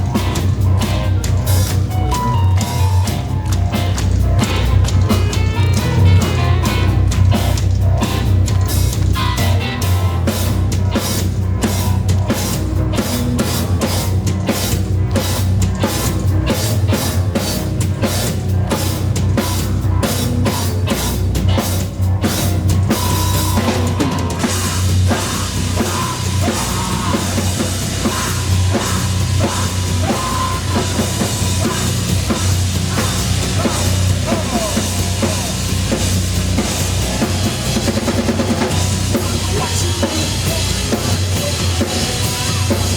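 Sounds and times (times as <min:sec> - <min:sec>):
hard drum beat: 0:00.0 - 0:42.9
live rock band playing: 0:00.0 - 0:42.9.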